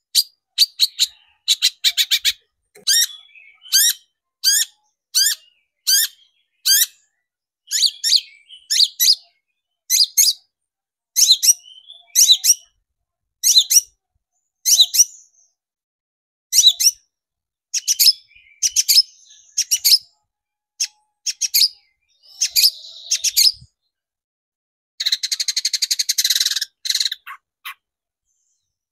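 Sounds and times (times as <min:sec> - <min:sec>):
fast bird chattering: 0:00.2 - 0:07.0, 0:19.6 - 0:20.0, 0:20.8 - 0:23.6, 0:25.0 - 0:27.8.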